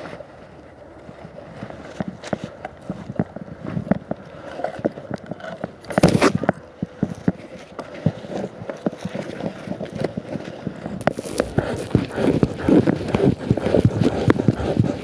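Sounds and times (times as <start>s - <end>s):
knocks clicks and scrapes: 5.5s - 6.5s, 11.0s - 15.0s.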